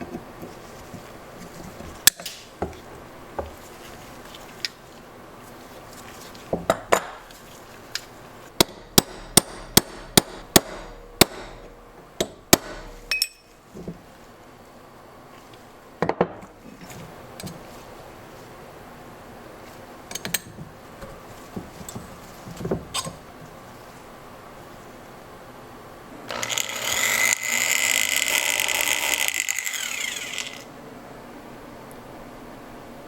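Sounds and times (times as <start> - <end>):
hammer striking metal: 8.6 - 13.5.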